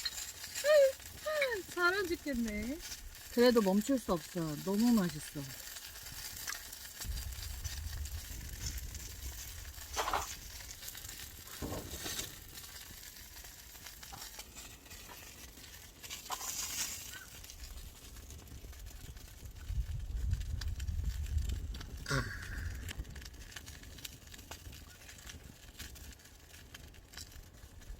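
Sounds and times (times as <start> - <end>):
meat sizzling on a grill plate: 0.0 - 15.3, 16.0 - 17.8
low rumble: 7.0 - 10.8.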